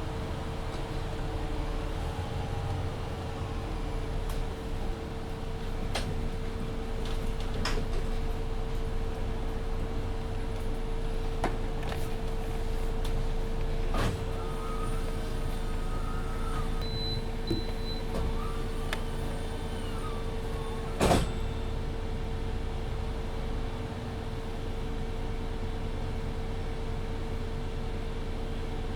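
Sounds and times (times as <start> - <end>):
bus running hum: 0.0 - 28.7
whining tones: 14.4 - 21.8.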